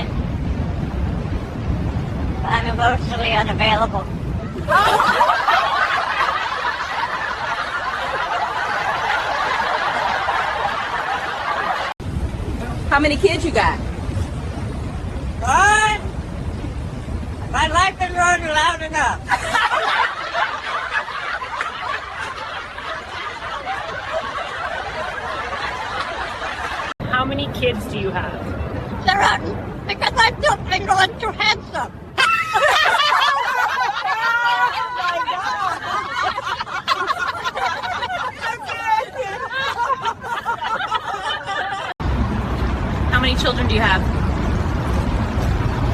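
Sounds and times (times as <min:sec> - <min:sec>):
background hubbub: 0:00.0 - 0:45.9
chuckling and snickering: 0:32.2 - 0:42.0.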